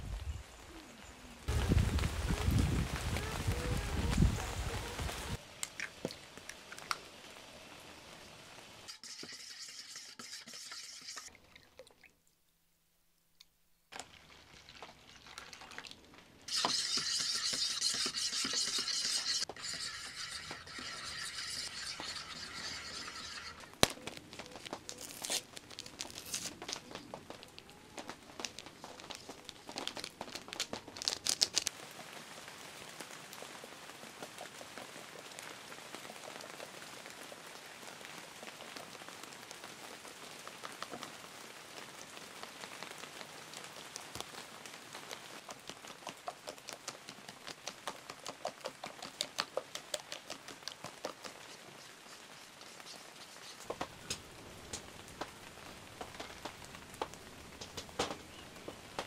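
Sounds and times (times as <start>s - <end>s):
rain pattering on plastic tent: 0.0s - 8.8s, 13.9s - 16.5s, 23.7s - 59.0s.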